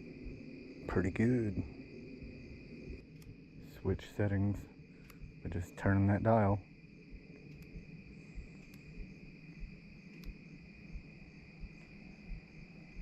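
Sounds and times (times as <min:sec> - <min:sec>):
night insects trilling: 0:00.0 - 0:13.0
faint clicks: 0:02.9 - 0:06.0, 0:07.1 - 0:13.0.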